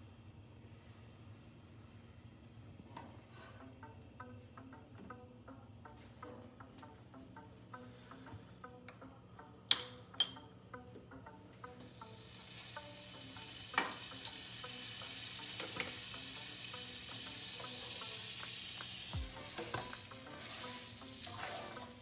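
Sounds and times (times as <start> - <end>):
cookware clinking: 9.7 - 10.5
sandwich sizzling in a skillet: 11.8 - 22.0.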